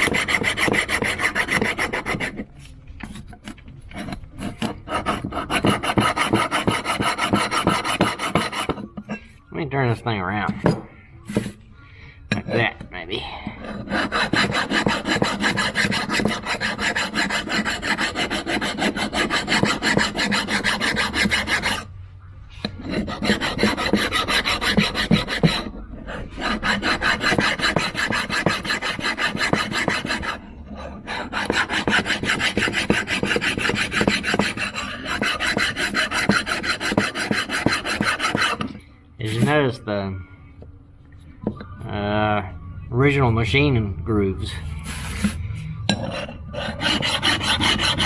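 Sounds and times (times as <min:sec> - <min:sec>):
metal file rasping on metal: 0:00.0 - 0:02.4, 0:03.9 - 0:09.0, 0:13.4 - 0:21.9, 0:22.6 - 0:39.6, 0:44.8 - 0:48.0.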